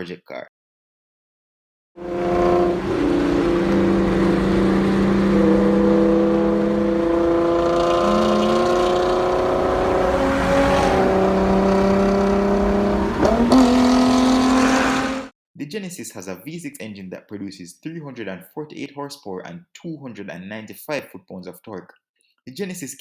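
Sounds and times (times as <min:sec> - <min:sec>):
car engine running: 0:02.0 - 0:15.2.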